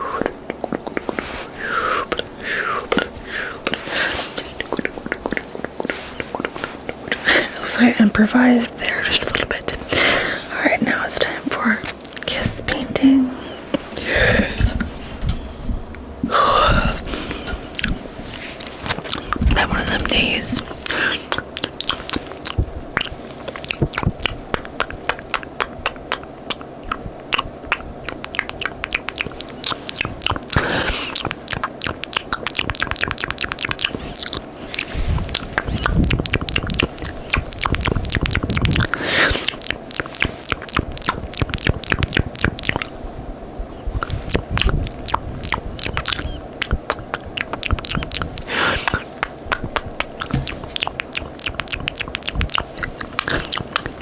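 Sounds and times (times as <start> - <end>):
rapid mouth clicks: 0.0 - 10.2, 10.8 - 43.0, 43.8 - 54.0
wet kisses and lip smacks: 0.1 - 1.5, 2.8 - 7.3, 17.8 - 42.9, 44.0 - 54.0.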